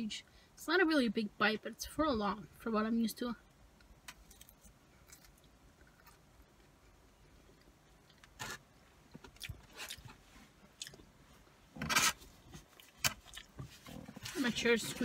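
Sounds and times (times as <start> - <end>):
person chewing wet eating: 9.1 - 11.1, 12.6 - 13.9.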